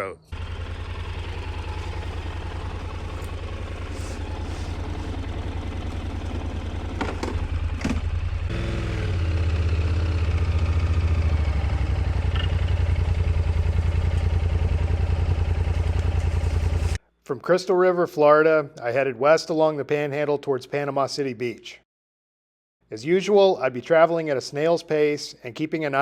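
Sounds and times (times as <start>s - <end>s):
motorcycle engine idling: 0.3s - 17.0s.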